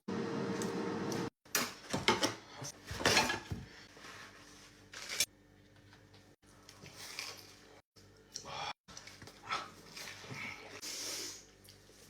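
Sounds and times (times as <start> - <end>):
kitchen rustles and knocks: 1.5 - 4.0.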